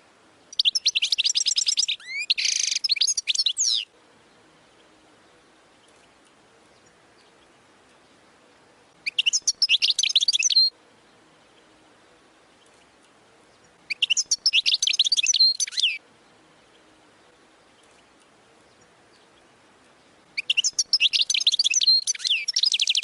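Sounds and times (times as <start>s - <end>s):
finch twittering: 0.5s - 3.9s, 9.0s - 10.7s, 13.6s - 16.0s, 20.4s - 23.0s.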